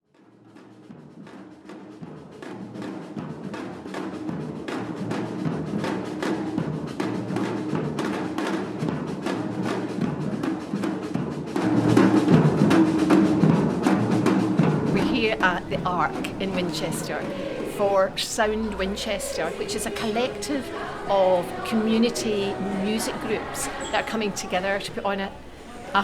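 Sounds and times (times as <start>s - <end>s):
drum beat: 14.8s - 23.9s
sustained pitched backing: 14.9s - 26.0s.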